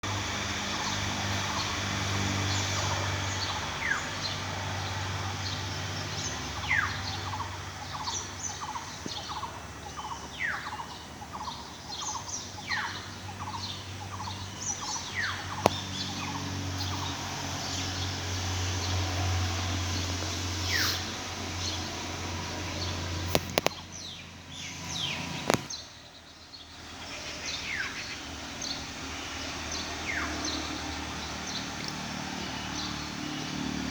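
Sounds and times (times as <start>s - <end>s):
birds calling: 0.0s - 33.9s
low engine-like hum: 0.0s - 33.9s
quick bird chirps: 20.6s - 21.8s
sharp clicks: 23.3s - 23.8s.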